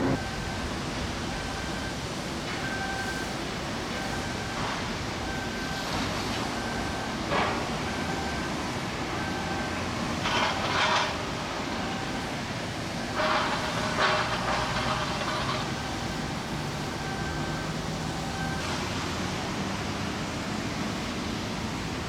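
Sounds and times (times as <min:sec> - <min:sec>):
two-pitch warning beep: 0:00.0 - 0:00.7
shipyard work din: 0:00.0 - 0:21.6.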